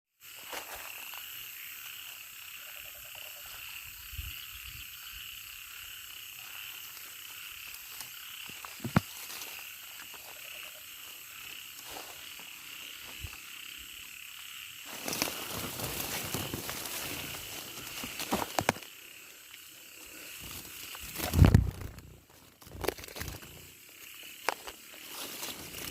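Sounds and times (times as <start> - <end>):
frogs and insects calling: 0.2 - 25.9
rustling and crackling: 14.9 - 18.9, 20.2 - 23.8.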